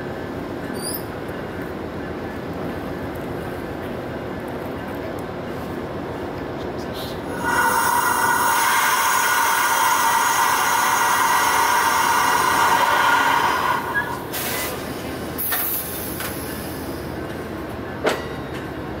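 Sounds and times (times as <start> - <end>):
train cars rumbling: 0.0 - 19.0
high-pitched train squeal: 0.7 - 1.1, 7.3 - 14.8
short sharp air hisses: 7.3 - 16.0.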